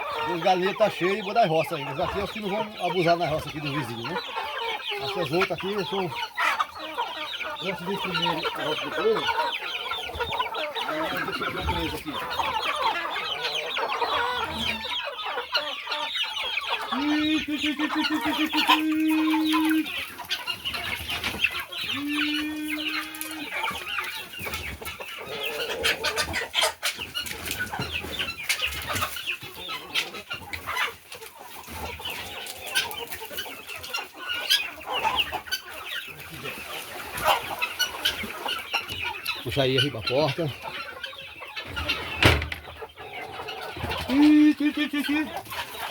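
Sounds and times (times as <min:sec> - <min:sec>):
chickens clucking: 0:00.0 - 0:45.9
long level calls: 0:15.8 - 0:24.2.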